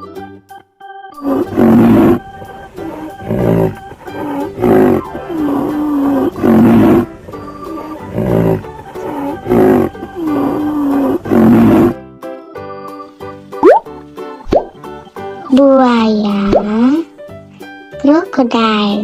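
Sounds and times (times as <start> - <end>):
background music: 0.0 - 19.0
rhinoceros bellowing calls: 1.2 - 12.0.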